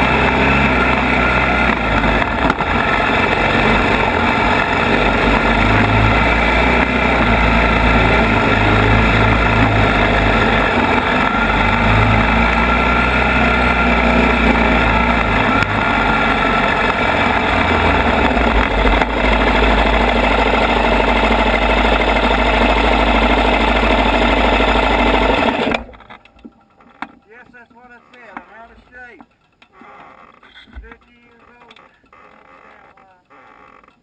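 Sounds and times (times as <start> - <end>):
atv engine running loudly: 0.0 - 26.0.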